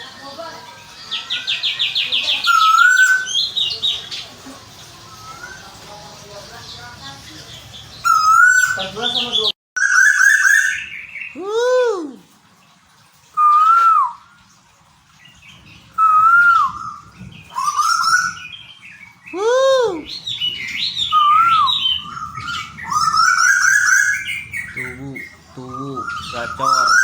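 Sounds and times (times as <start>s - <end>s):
bird high chirps: 0.9s - 4.3s, 15.3s - 27.0s
bird whistled calls: 1.2s - 3.8s, 8.0s - 12.2s, 13.4s - 14.4s, 15.9s - 27.0s.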